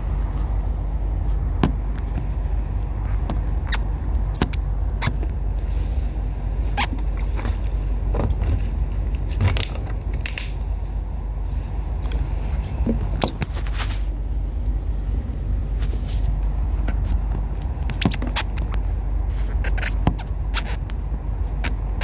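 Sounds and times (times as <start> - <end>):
train carriage rumble: 0.0 - 22.0
sharp clicks and creaks: 1.8 - 5.4, 16.7 - 22.0.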